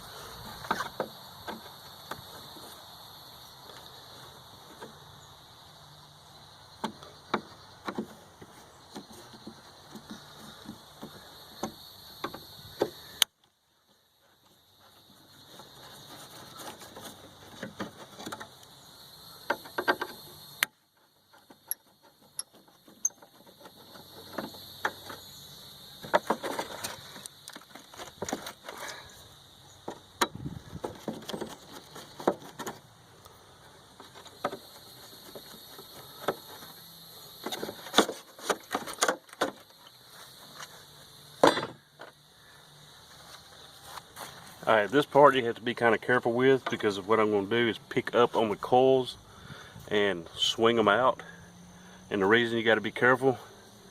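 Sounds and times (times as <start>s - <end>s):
steady high-pitched hiss: 0.0s - 53.9s
hand tools clicking and clanking: 14.4s - 25.3s, 29.8s - 40.7s, 41.4s - 42.2s.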